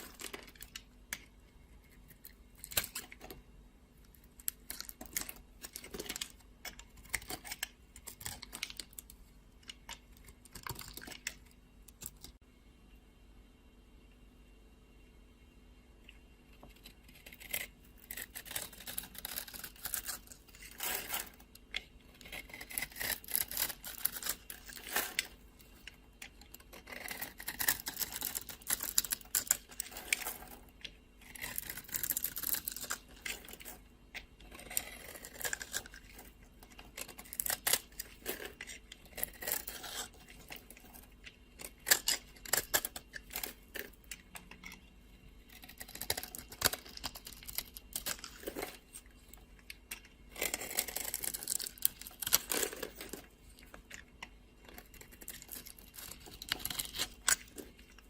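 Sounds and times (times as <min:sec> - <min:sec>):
knife cutting dry soap: 0:16.8 - 0:30.3, 0:31.1 - 0:44.8, 0:49.9 - 0:53.2.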